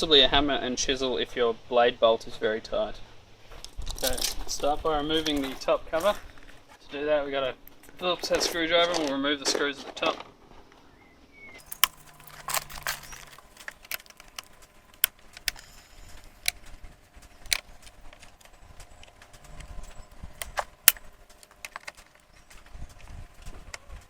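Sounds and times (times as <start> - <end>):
screwdriver clicking on metal: 11.6 - 22.4.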